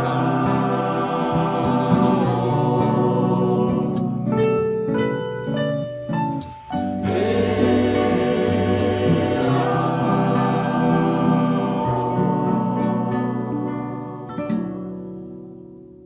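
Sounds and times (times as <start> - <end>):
mixed choir singing chord: 0.0 - 4.4, 7.0 - 14.4
plucked acoustic guitar: 0.0 - 16.0.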